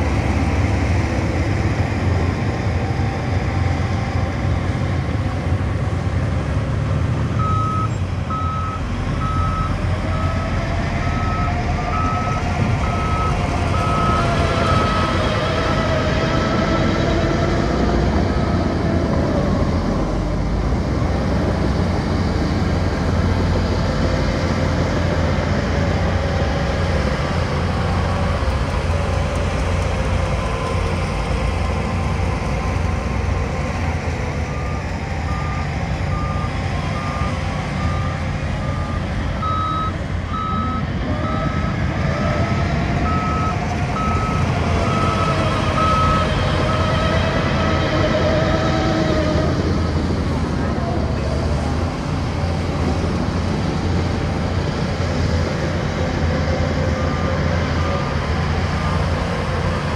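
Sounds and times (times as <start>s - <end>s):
diesel machinery engine drone: 0.0s - 59.9s
reversing alarm beeping: 7.4s - 15.8s, 34.4s - 41.8s, 42.6s - 47.1s.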